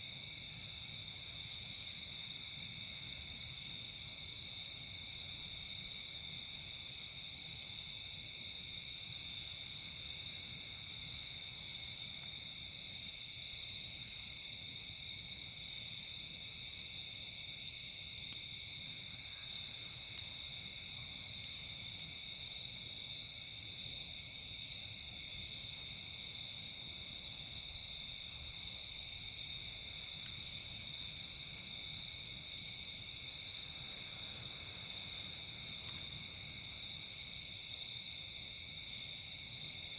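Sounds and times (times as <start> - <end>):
night insects trilling: 0.0 - 39.9
pulsing high insect call: 26.0 - 39.9.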